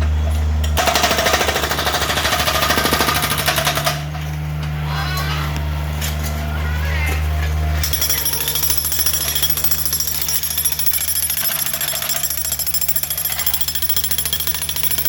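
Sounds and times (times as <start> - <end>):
jackhammer breaking concrete: 0.8 - 4.3, 7.8 - 15.0.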